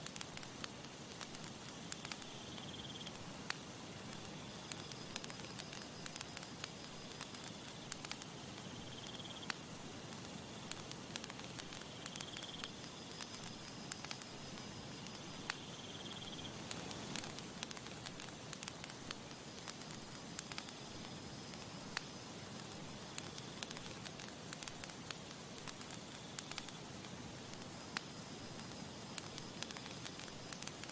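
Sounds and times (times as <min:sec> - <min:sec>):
campfire crackling and popping: 0:00.0 - 0:30.9.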